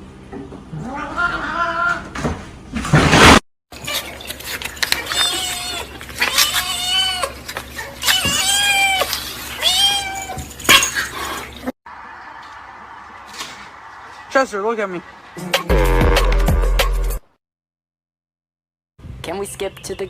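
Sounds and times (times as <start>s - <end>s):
cat meowing: 5.0s - 10.5s.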